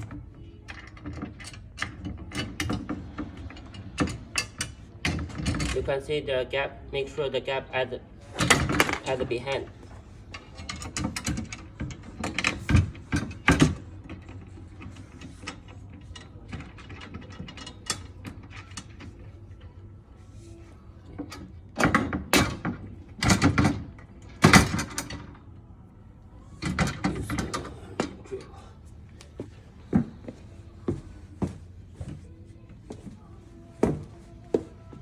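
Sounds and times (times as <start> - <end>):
bed-frame hardware knocking and clicking: 33.8 - 35.0.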